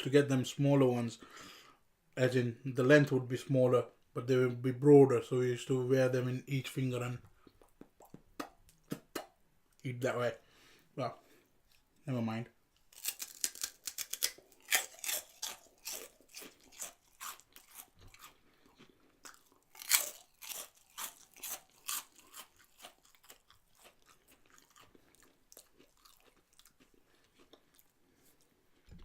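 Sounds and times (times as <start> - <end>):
crunching and chewing snacks: 12.8 - 29.0.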